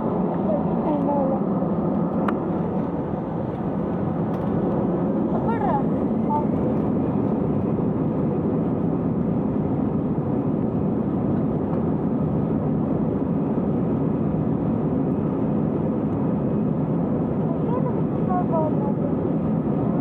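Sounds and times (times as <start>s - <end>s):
jet engine cabin rush: 0.0s - 9.5s.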